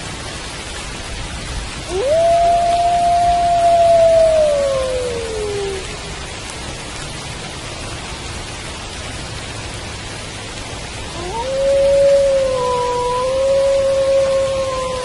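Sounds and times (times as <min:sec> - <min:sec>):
steady rain: 0:00.0 - 0:15.0
wolf howling: 0:01.9 - 0:06.0, 0:11.2 - 0:15.0.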